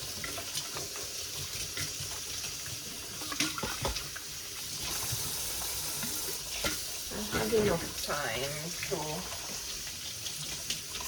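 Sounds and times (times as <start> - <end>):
tap running into a sink: 0.0 - 11.0
dishes clinking: 6.6 - 7.9.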